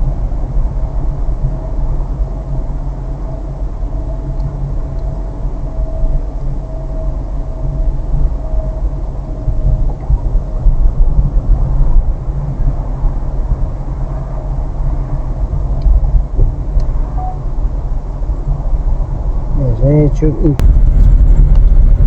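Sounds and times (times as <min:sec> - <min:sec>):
car engine and road rumble: 0:19.6 - 0:22.0.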